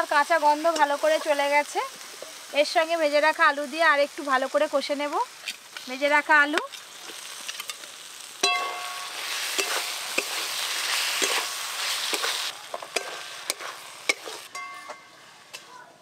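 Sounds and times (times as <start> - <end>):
sizzling hiss: 0.0 - 16.0
metal clinks against wok: 8.4 - 9.8, 14.1 - 15.1
spatula scraping a wok: 8.9 - 15.7.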